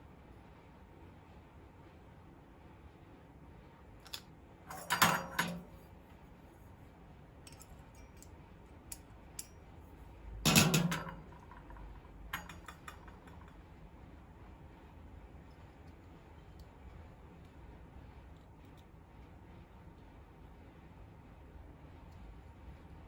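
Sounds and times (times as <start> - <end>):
metal tools clinking: 4.1 - 5.8.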